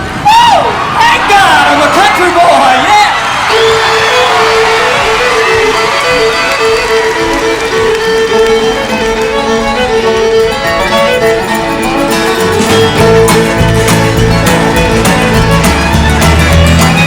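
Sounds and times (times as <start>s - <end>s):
fiddle playing fast tune: 1.0s - 17.0s
strummed guitar: 3.5s - 17.0s.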